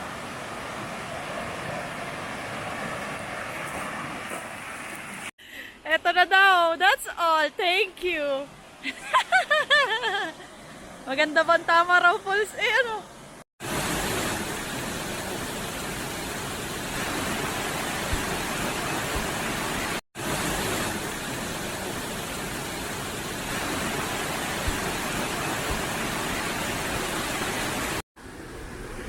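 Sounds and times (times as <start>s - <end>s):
waterfall roaring: 13.6s - 29.0s.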